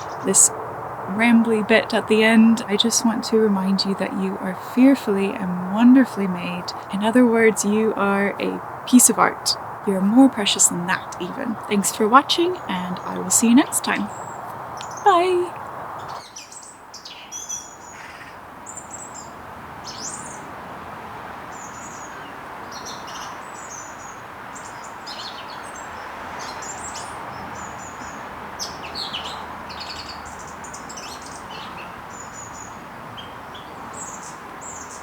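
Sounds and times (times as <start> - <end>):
steady background hiss: 0.0 - 16.2
songbirds chirping: 0.0 - 20.8, 21.4 - 35.0.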